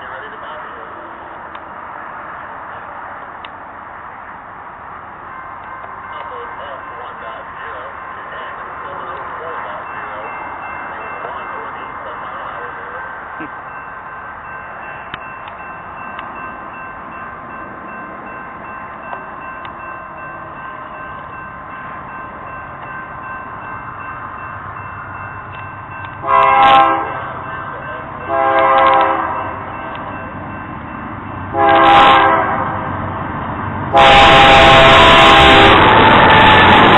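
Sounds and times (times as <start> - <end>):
locomotive air horn blasts: 26.2 - 27.4, 28.3 - 29.5, 31.5 - 32.8, 33.9 - 36.9.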